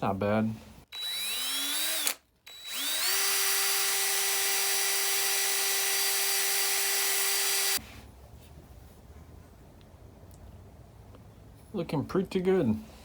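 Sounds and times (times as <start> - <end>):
electric drill whining: 0.9 - 7.8.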